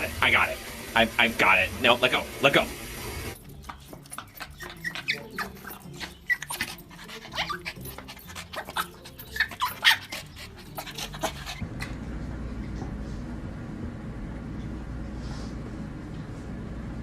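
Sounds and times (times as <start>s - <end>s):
dog whining and yipping: 3.8s - 11.6s.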